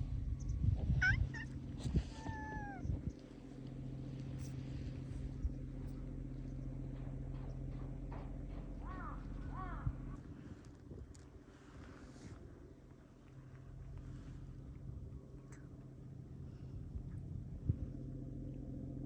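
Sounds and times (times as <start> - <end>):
steady low hum: 0.0 - 19.0
cat meowing: 1.0 - 1.6, 2.2 - 2.8.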